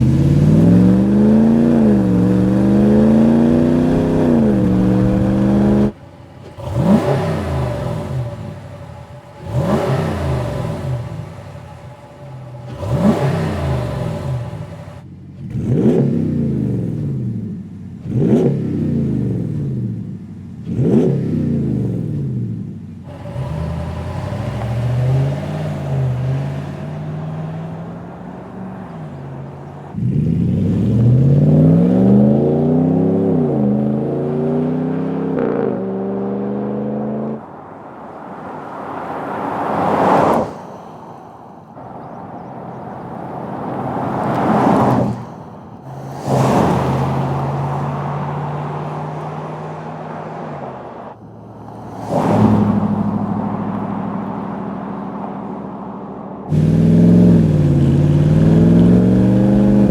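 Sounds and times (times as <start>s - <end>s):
truck driving past: 0.0s - 6.4s, 23.1s - 59.9s
truck exhaust idling and revving: 0.0s - 59.9s.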